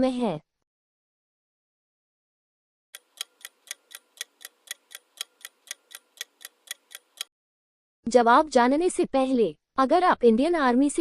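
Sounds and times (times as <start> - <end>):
clock ticking: 3.0 - 7.3.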